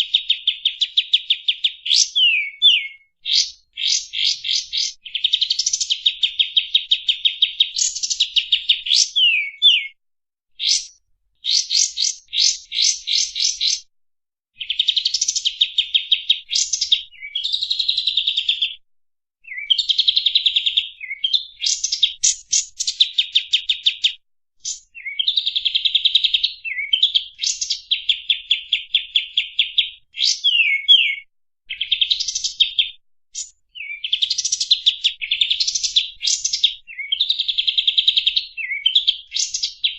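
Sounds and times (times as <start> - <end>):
bird singing rapid trills: 0.5 - 10.0, 10.6 - 13.9, 24.6 - 32.8.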